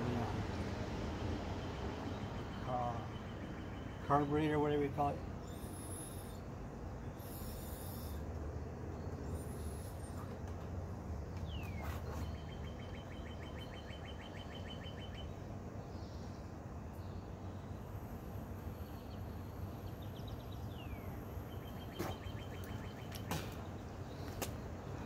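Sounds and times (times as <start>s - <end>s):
low outdoor rumble: 0.0s - 25.0s
songbird whistle and trill: 11.4s - 15.3s.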